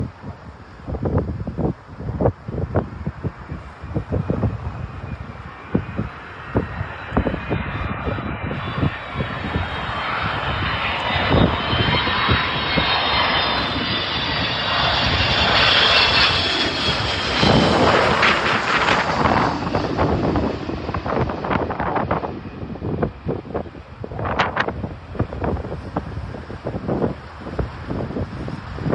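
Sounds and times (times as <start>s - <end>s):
jet engines with high whine: 0.0s - 28.9s
wind buffeting microphone: 0.0s - 28.9s.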